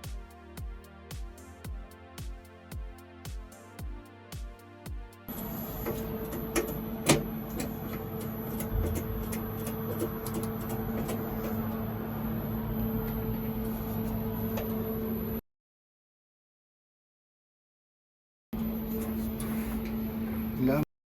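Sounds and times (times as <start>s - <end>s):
inverter cooling fan hum: 5.3s - 15.4s, 18.6s - 20.9s
thin high whine: 5.3s - 15.4s, 18.6s - 20.8s.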